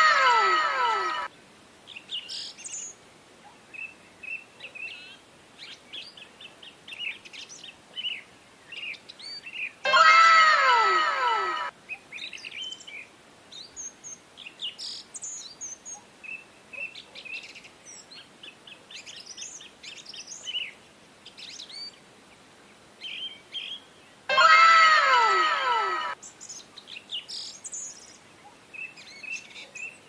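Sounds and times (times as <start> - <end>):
background hiss: 0.0 - 30.0
birds chirping: 23.1 - 30.0
loud pitched falling tone: 24.3 - 26.2.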